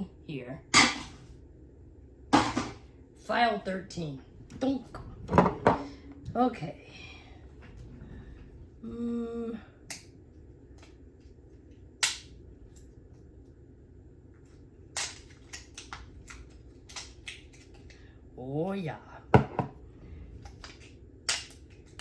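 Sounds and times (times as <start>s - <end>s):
person humming: 8.8s - 9.7s
batteries and packaging clicking: 14.9s - 18.0s, 20.4s - 22.0s.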